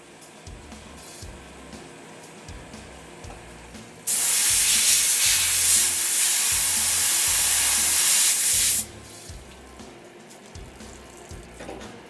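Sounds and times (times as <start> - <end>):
coolant spraying hiss: 4.1 - 9.3.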